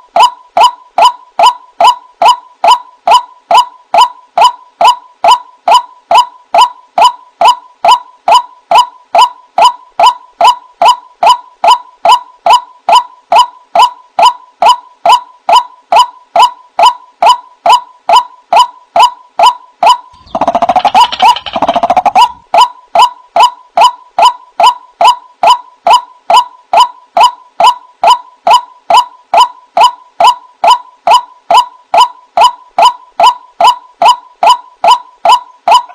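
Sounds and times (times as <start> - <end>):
burst of overlapping bird calls: 19.9 - 23.5.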